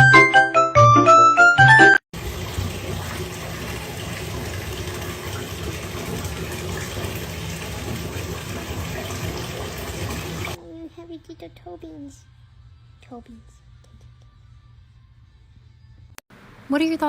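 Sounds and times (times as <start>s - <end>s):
melody of short pitched notes: 0.0s - 2.0s.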